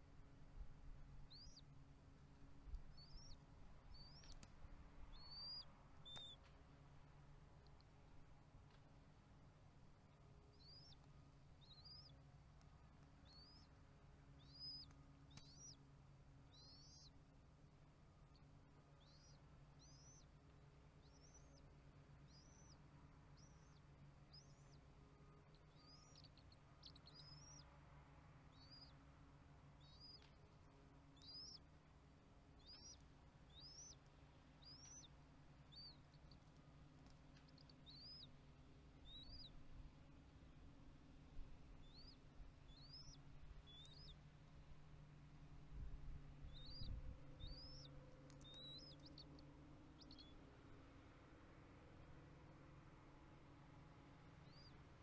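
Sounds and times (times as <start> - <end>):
low hum: 0.0 - 55.0
bird chirping: 1.3 - 1.7, 2.7 - 6.5, 10.5 - 12.2, 13.2 - 13.8, 14.4 - 15.8, 16.5 - 17.2, 18.3 - 27.8, 28.5 - 29.0, 29.7 - 30.5, 31.1 - 31.7, 32.6 - 38.4, 39.0 - 39.7, 41.7 - 44.3, 45.7 - 50.5, 54.4 - 54.8.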